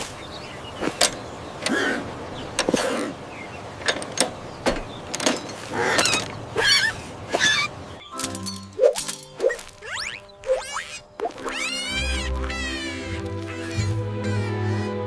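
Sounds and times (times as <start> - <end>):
squeaky chirps bending in pitch: 8.8 - 14.6.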